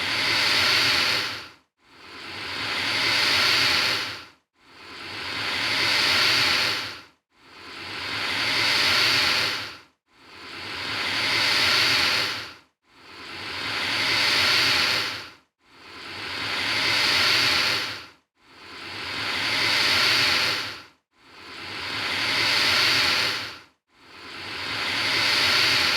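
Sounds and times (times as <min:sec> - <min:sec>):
alligator hissing: 0:00.0 - 0:01.4, 0:02.1 - 0:04.2, 0:04.9 - 0:07.0, 0:07.6 - 0:09.7, 0:10.4 - 0:12.5, 0:13.2 - 0:15.2, 0:16.1 - 0:18.0, 0:18.7 - 0:20.8, 0:21.4 - 0:23.5, 0:24.4 - 0:25.9.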